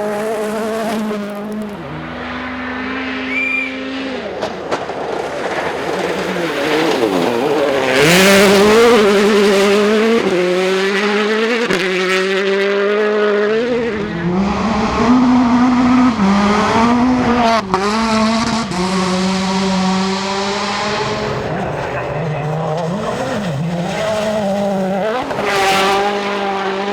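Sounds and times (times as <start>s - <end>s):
rally car engine revving: 0.0s - 26.9s.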